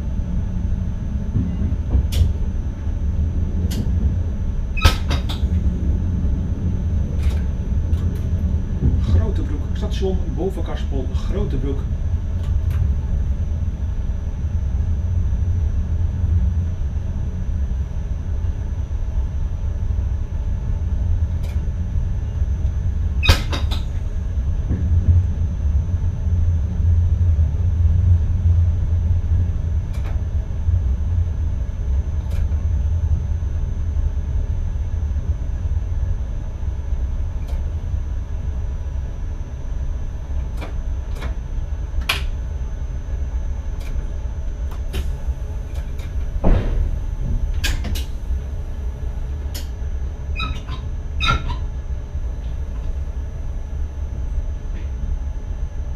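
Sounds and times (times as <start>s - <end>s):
train rumbling on track: 0.0s - 55.9s.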